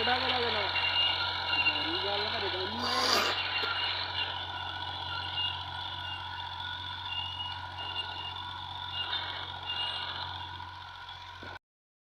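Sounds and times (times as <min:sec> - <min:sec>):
tractor engine running: 0:00.0 - 0:11.6
short high-pitched squeals: 0:02.7 - 0:11.1.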